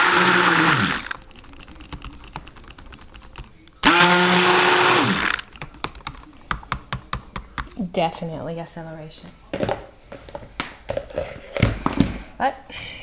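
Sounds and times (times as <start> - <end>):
stick blender running: 0.0 - 1.2, 3.8 - 5.5.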